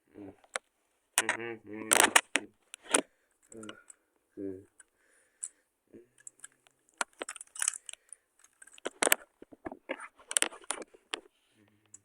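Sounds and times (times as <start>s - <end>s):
plastic toy parts clicking and rattling: 1.2s - 4.0s, 6.2s - 11.3s.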